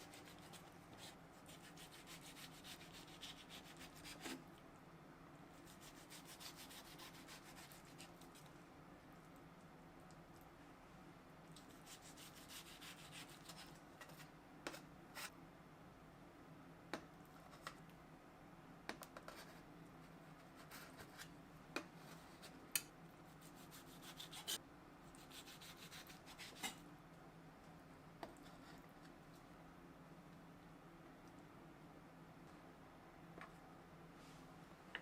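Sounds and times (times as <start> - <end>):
soft rubbing and scraping strokes: 34.1 - 34.8.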